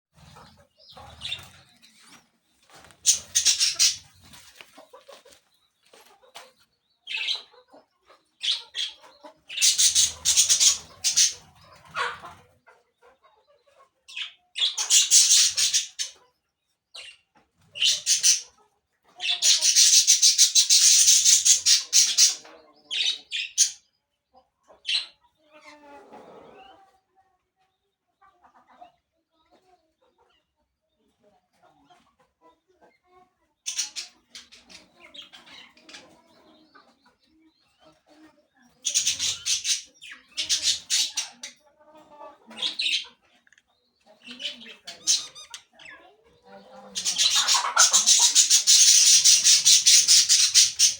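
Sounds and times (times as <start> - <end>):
parakeets calling: 0.4 - 1.7, 2.9 - 4.3, 7.1 - 7.5, 8.4 - 12.3, 14.1 - 16.1, 17.8 - 18.4, 19.2 - 23.8, 38.8 - 41.4, 42.6 - 43.1, 44.2 - 46.0, 46.9 - 50.9.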